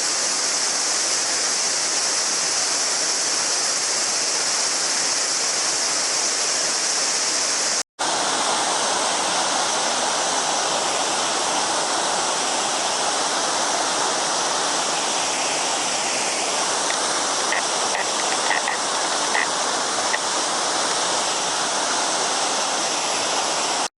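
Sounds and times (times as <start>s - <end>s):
river babbling over stones: 8.0s - 23.9s
cicada chorus: 15.5s - 19.6s.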